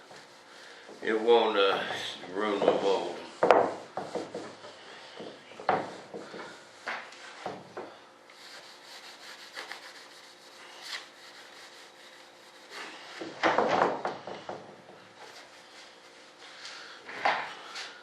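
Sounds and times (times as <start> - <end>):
sock rubbing wax onto mold: 8.3 - 13.1.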